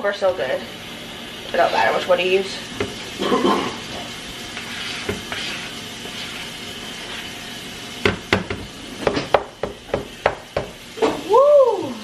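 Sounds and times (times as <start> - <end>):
steady hiss: 0.7 - 12.0
utensil knocking on mixing bowl: 9.3 - 10.8.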